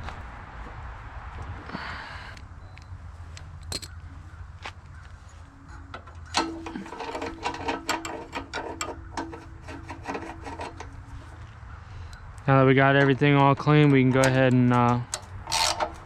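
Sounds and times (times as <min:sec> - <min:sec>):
ratchet clicking rapidly: 0:13.1 - 0:16.0.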